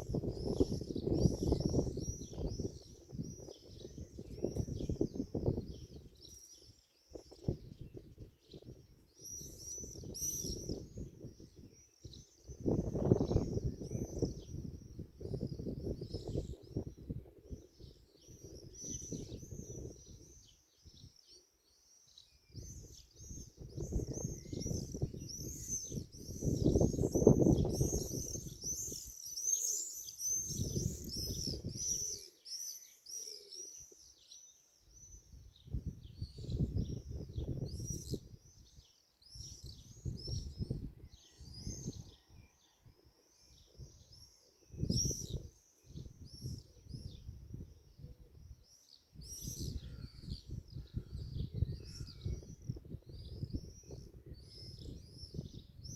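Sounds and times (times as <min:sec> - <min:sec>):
small birds chirping: 0:00.0 - 0:55.9
low rumbling wind gusts: 0:12.5 - 0:17.6, 0:49.7 - 0:55.9.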